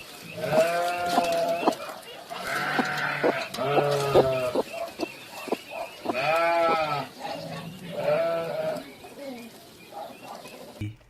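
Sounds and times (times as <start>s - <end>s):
animal bleating: 0.3s - 1.8s, 2.4s - 4.6s, 6.1s - 8.9s.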